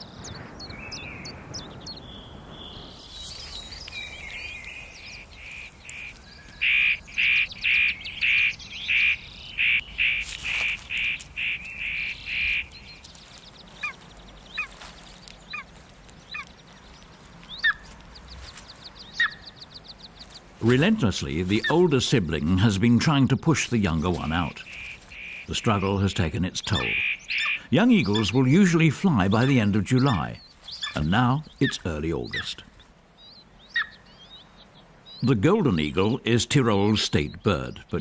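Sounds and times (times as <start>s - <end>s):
faint chirps: 0.0s - 22.2s
eagle chick calling: 0.0s - 38.0s.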